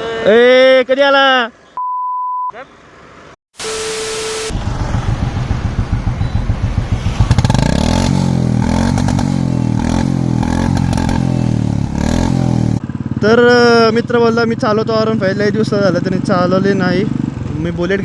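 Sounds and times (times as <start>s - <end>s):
engine revving: 4.3s - 18.0s
motorcycle engine thumping exhaust: 4.6s - 18.0s.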